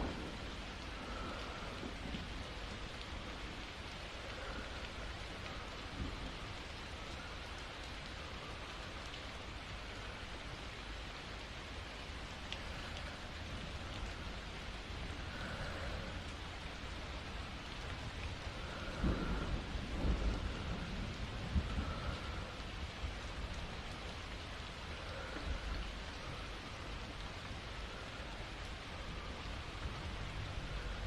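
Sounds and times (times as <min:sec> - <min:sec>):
thunder rumbling: 0:00.0 - 0:07.5, 0:17.5 - 0:26.5
steady rain: 0:00.0 - 0:31.0.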